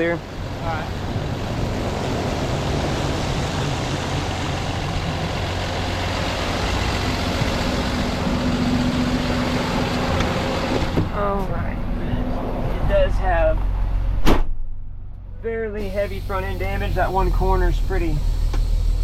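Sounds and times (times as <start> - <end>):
diesel truck engine running: 0.0 - 14.2, 14.9 - 19.0
road noise: 0.0 - 19.0
rain hiss: 15.8 - 19.0.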